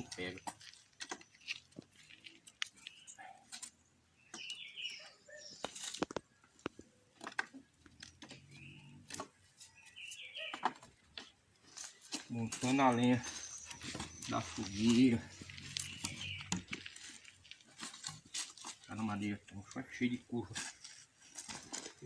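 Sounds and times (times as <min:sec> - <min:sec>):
bird chirps: 0:04.1 - 0:06.7, 0:07.6 - 0:10.9, 0:12.3 - 0:17.4
firewood logs knocking: 0:05.9 - 0:08.5.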